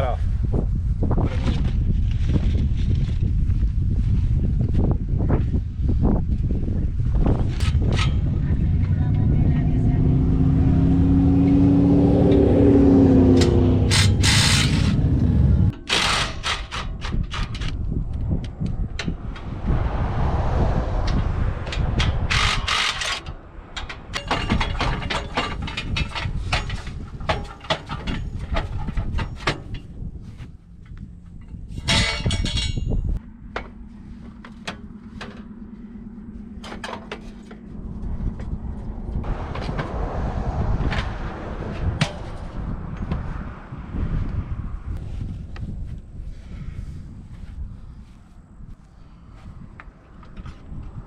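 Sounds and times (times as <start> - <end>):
dense metallic rattle: 13.4 - 18.0, 21.6 - 30.0, 31.4 - 38.6
steady low hum: 29.8 - 50.1.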